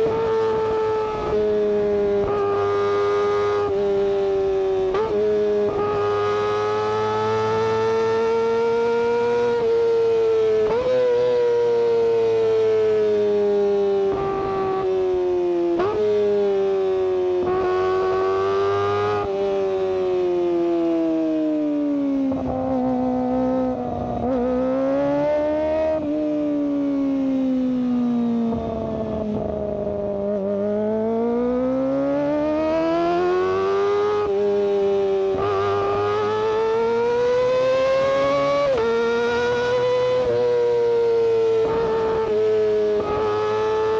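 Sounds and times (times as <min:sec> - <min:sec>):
motorcycle engine high-pitched wail: 0:00.0 - 0:43.9.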